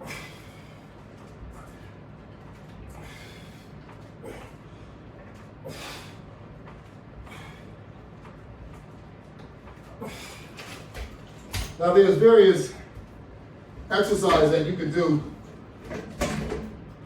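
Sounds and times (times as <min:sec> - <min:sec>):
man breathing out hard: 0:00.0 - 0:00.9, 0:02.9 - 0:04.9, 0:05.6 - 0:06.2, 0:10.0 - 0:10.6
low room hum: 0:00.0 - 0:17.0.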